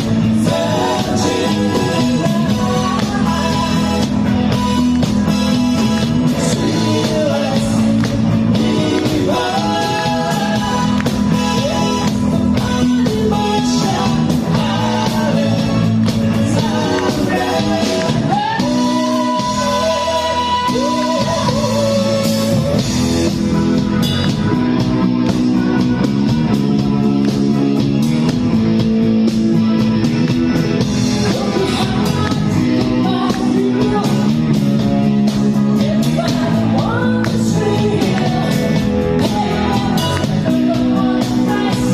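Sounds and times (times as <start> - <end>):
person singing: 0.0 - 5.0, 6.3 - 23.2, 31.2 - 34.6, 35.7 - 41.9
rock band with guitar: 0.0 - 41.9
steady drum beat: 0.0 - 41.9.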